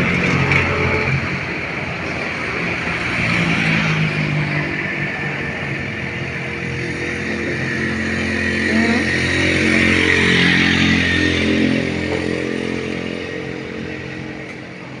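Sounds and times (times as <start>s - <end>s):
vehicle engine passing: 3.0s - 14.5s.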